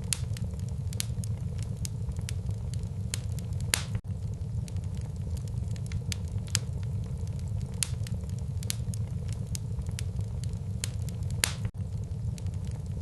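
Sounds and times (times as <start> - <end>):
low fire rumble: 0.0 - 13.0
wood fire crackling and popping: 0.0 - 13.0.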